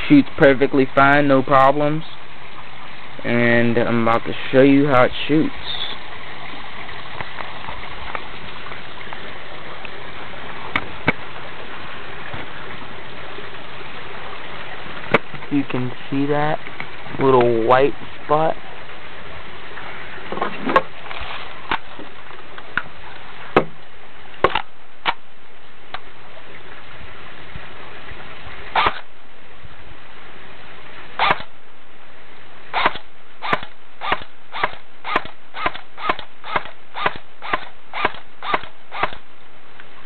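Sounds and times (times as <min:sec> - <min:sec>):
airsoft gun shots: 0:28.8 - 0:29.0, 0:31.2 - 0:31.5, 0:32.8 - 0:39.2.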